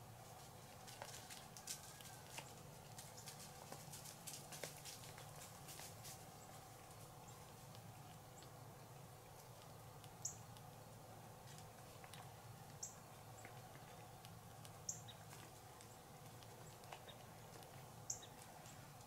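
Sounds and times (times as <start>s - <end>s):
small bird chirping: 9.5s - 10.6s, 12.7s - 18.8s.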